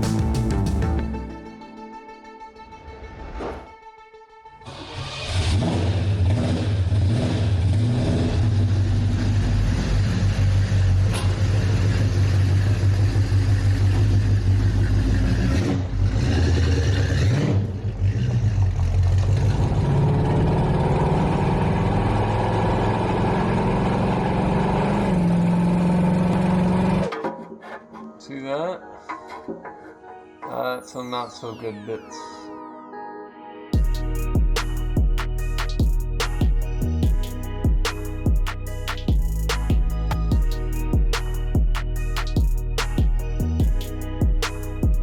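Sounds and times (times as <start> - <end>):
car engine running: 5.5 - 27.0.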